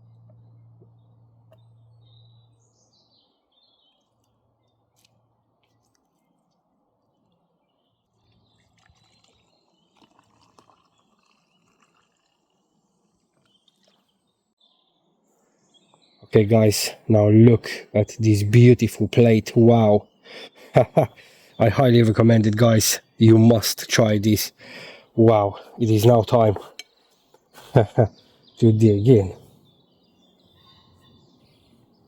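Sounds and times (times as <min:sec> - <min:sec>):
low steady hum: 0:00.0 - 0:05.5
faint birdsong: 0:00.0 - 0:32.0.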